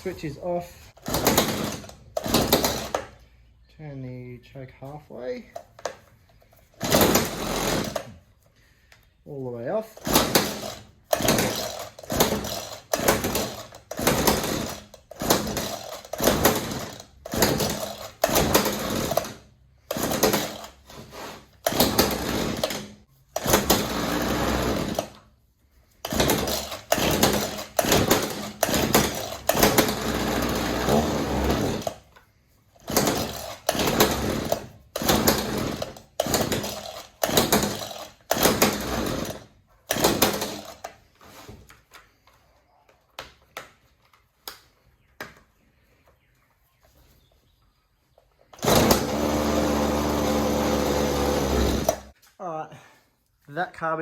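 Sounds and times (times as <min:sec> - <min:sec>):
recoil starter pull: 0:00.0 - 0:03.3, 0:05.4 - 0:08.3, 0:09.8 - 0:25.3, 0:26.0 - 0:32.2, 0:32.8 - 0:42.1, 0:48.5 - 0:52.2.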